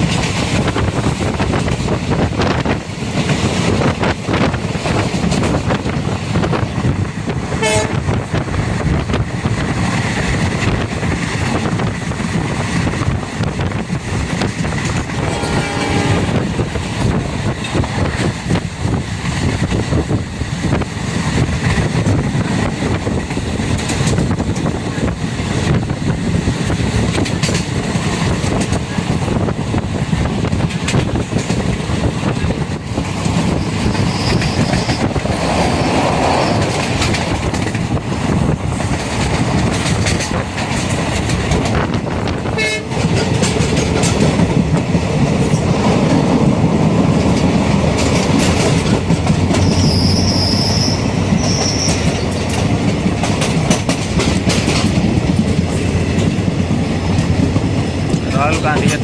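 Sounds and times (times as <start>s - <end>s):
train rumbling: 0.0s - 59.0s
wheels clattering over rail joints: 30.5s - 59.0s.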